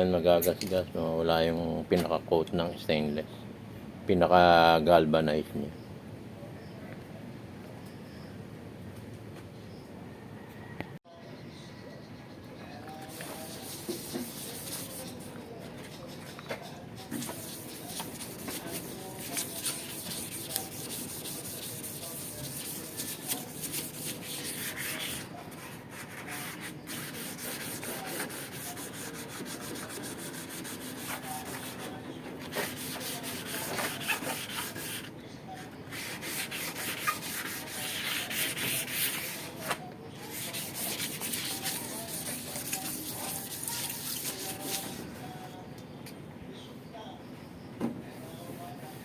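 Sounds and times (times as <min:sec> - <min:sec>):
hand scrubbing stainless steel: 0:13.0 - 0:35.1, 0:35.9 - 0:45.0.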